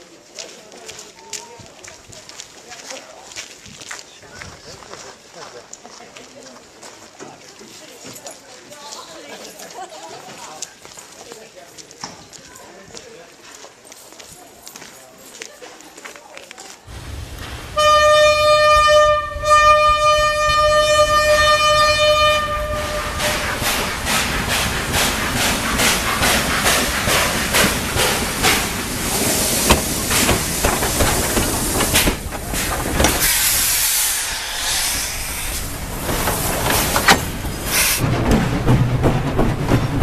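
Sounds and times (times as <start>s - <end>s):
steam locomotive exhaust chuffs: 16.9s - 40.0s
steam locomotive whistle: 17.7s - 23.8s
steam hiss: 22.7s - 38.2s.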